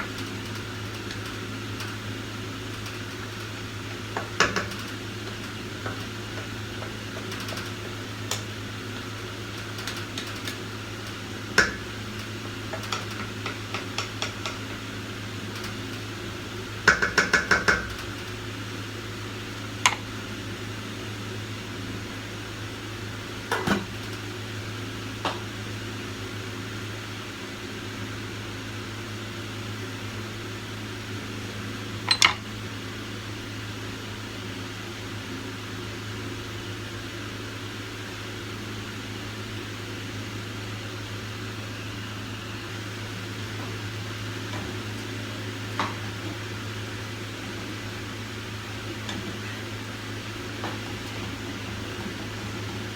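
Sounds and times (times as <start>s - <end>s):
pots and utensils clinking: 32.1s - 32.5s.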